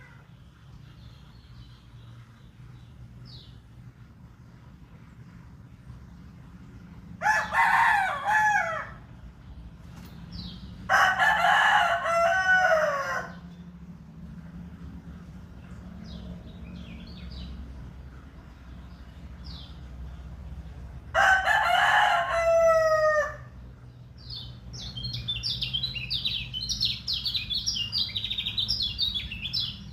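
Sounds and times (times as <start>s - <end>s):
rooster crowing: 7.2s - 9.1s, 10.9s - 13.5s, 21.1s - 23.6s
small bird chirping: 24.2s - 29.9s.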